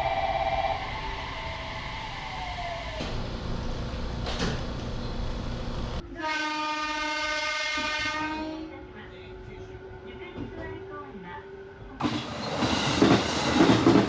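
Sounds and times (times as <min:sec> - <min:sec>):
train rumbling: 0:00.0 - 0:06.0, 0:11.8 - 0:14.0
train horn blast: 0:06.0 - 0:08.9.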